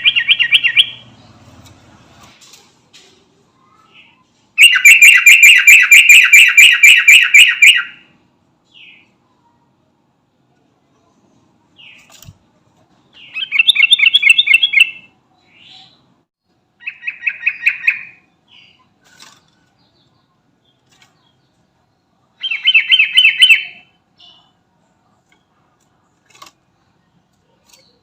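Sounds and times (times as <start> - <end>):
bird singing rapid repeated notes: 0.0 - 1.6, 3.6 - 8.0, 13.1 - 16.2, 16.8 - 24.6.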